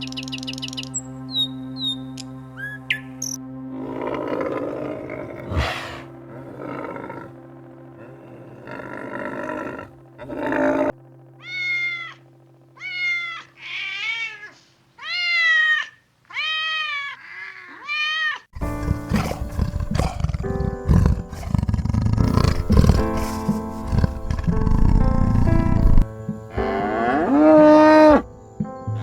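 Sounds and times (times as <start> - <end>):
music: 0.0 - 13.6, 18.6 - 29.0
cat meowing: 11.4 - 12.2, 12.8 - 18.5.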